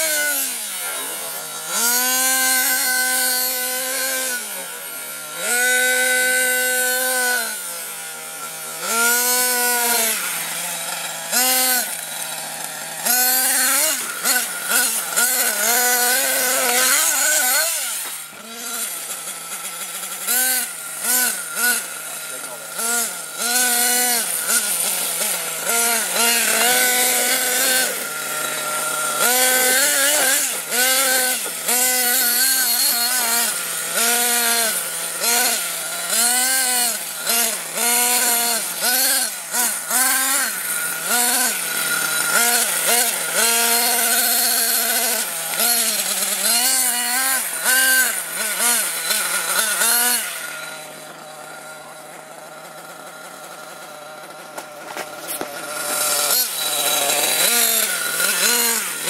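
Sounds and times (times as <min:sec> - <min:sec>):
rc truck engine revving: 0:00.0 - 0:59.0.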